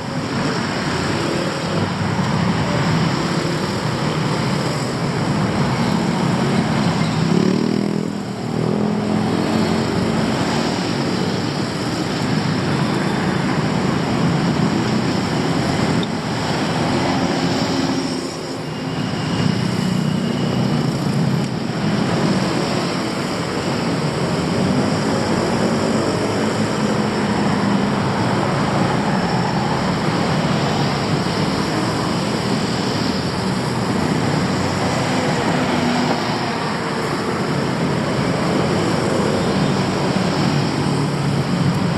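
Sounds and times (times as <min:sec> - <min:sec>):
road traffic hum: 0:00.0 - 0:41.9.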